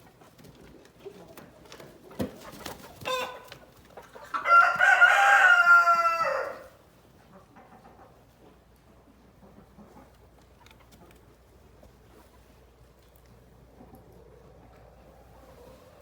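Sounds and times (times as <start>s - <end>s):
chicken cluck: 0.0s - 16.0s
rooster crowing: 4.4s - 6.8s.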